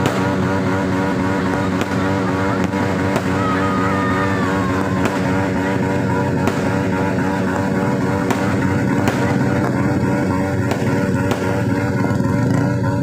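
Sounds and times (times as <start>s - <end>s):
firework pops: 0.0s - 0.5s, 1.5s - 3.4s, 6.4s - 11.9s
drone of held tones: 0.0s - 13.0s.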